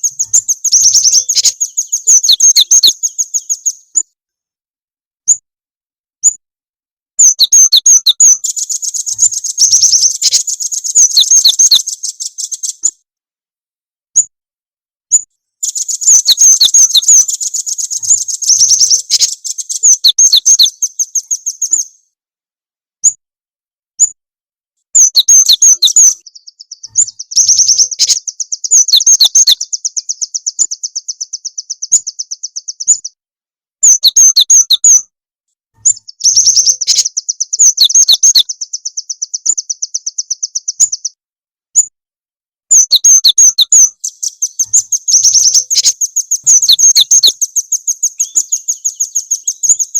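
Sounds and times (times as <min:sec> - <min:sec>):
rattling bird trill: 0:00.0 - 0:03.9, 0:07.2 - 0:12.8, 0:15.6 - 0:22.0, 0:25.0 - 0:33.1, 0:35.8 - 0:41.1, 0:42.7 - 0:49.9
high-pitched rapid bird chirps: 0:00.0 - 0:04.1, 0:07.2 - 0:13.0, 0:15.1 - 0:22.1, 0:25.0 - 0:33.2, 0:33.8 - 0:35.1, 0:35.8 - 0:42.0, 0:42.7 - 0:49.9.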